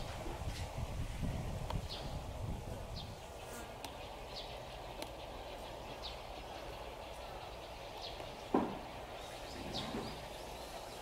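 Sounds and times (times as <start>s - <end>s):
faint background noise: 0.0s - 11.0s
bird chirping: 2.9s - 11.0s.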